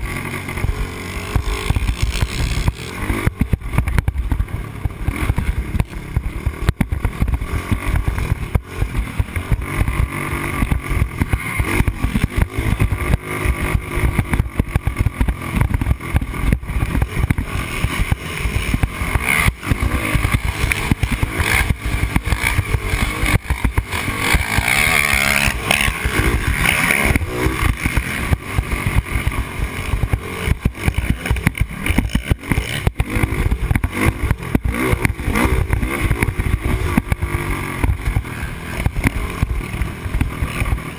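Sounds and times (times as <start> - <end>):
quad engine revving: 0.0 - 40.9.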